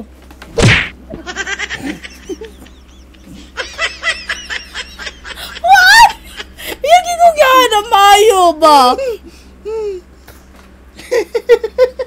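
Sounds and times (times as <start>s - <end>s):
people laughing: 1.2s - 7.0s.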